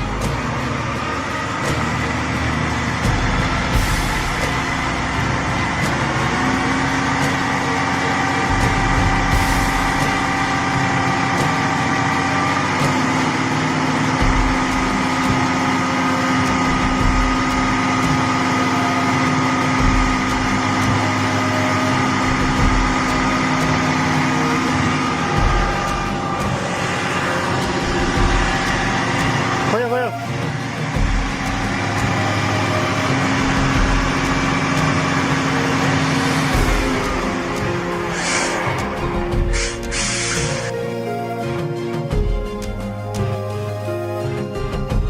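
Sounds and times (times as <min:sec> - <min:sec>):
truck engine running: 0:00.0 - 0:45.0.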